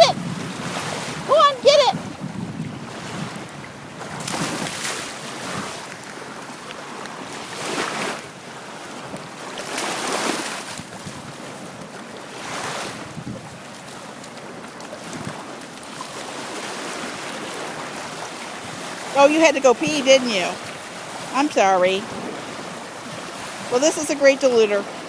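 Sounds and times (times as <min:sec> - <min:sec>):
wind on microphone: 0:00.0 - 0:06.0, 0:10.0 - 0:11.8, 0:12.4 - 0:13.7
waves washing onto shore: 0:00.0 - 0:25.0.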